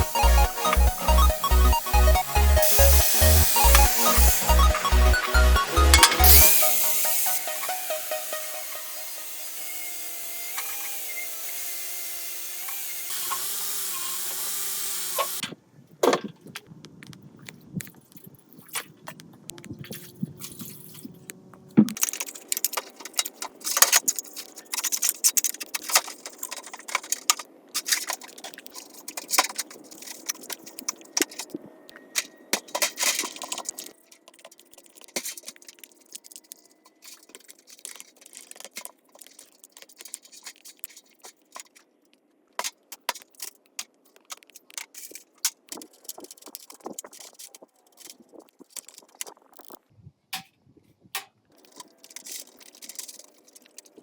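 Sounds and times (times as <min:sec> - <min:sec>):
metal tools clinking and scraping: 0:05.8 - 0:10.0, 0:22.0 - 0:41.8, 0:51.6 - 0:54.0.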